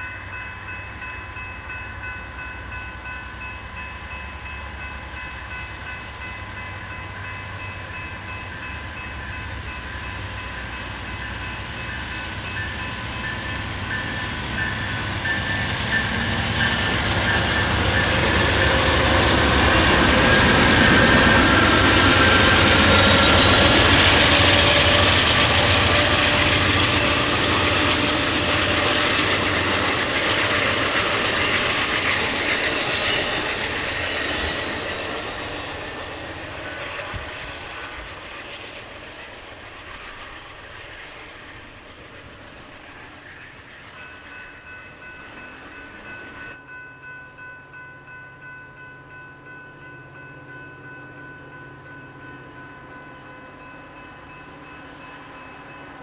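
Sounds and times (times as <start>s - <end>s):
steady high-pitched tones: 0.0s - 56.0s
train low rumble: 0.0s - 56.0s
wheel-on-rail rushing noise: 11.5s - 46.6s.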